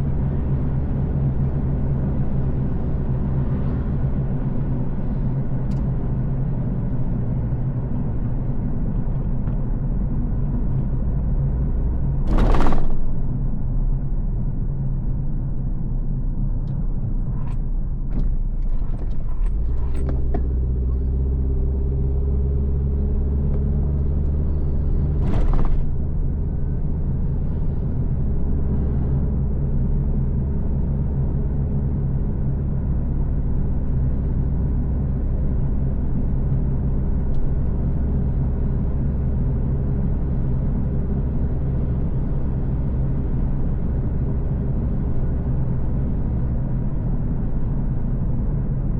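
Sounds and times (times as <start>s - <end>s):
car engine running: 12.2s - 20.2s.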